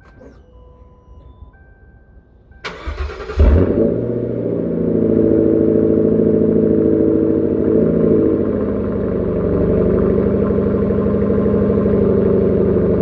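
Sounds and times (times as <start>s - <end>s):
car engine idling loudly: 3.3s - 13.0s.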